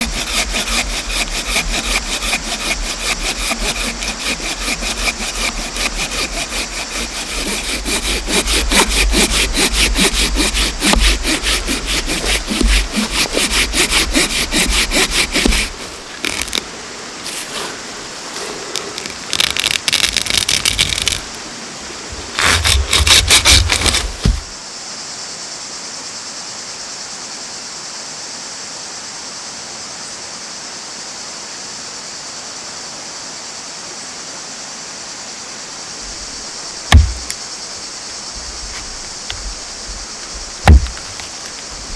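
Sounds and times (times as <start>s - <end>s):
hand saw cutting wood: 0.0s - 24.6s, 36.0s - 41.9s.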